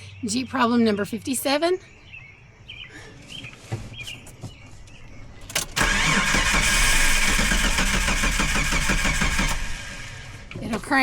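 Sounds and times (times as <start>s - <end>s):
engine cranking without starting: 5.4s - 11.0s.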